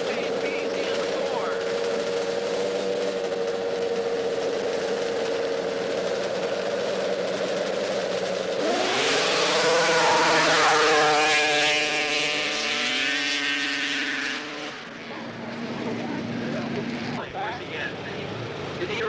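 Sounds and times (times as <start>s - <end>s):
snowmobile engines revving: 0.0s - 19.0s.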